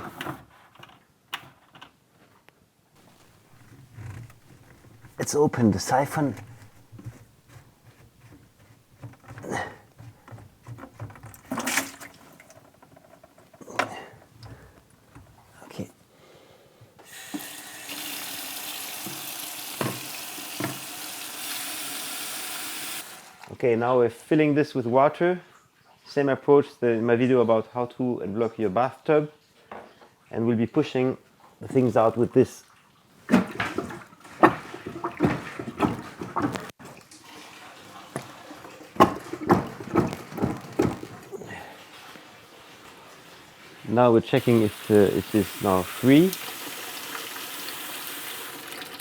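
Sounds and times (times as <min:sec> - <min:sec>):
plunger pumping in sink: 0:03.0 - 0:15.5, 0:17.0 - 0:23.5, 0:33.2 - 0:41.8
water sloshing: 0:03.0 - 0:15.6, 0:33.1 - 0:43.9
tap running into sink: 0:17.2 - 0:22.3, 0:38.1 - 0:41.1.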